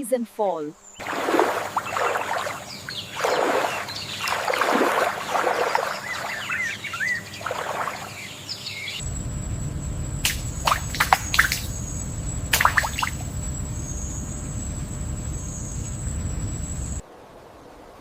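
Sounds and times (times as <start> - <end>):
rough bird calls: 0.8 - 9.0
low rushing noise: 9.0 - 17.0.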